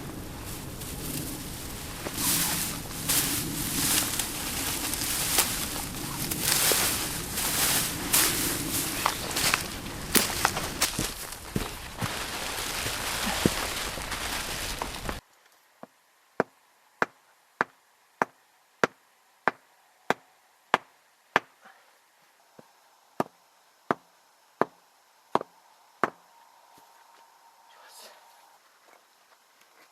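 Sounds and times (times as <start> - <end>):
loud rustling: 0.0 - 15.2.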